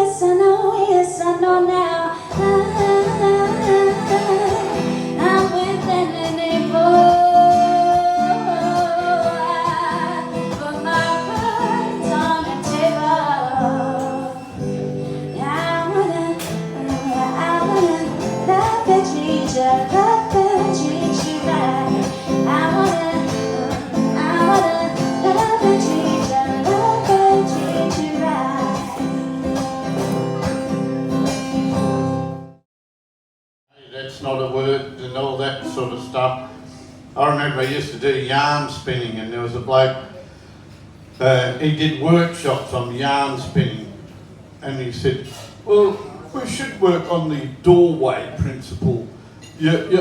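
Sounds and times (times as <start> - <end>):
person singing: 0.0 - 14.6, 15.3 - 30.1
plucked acoustic guitar: 0.2 - 32.6, 35.2 - 38.1, 48.4 - 50.0.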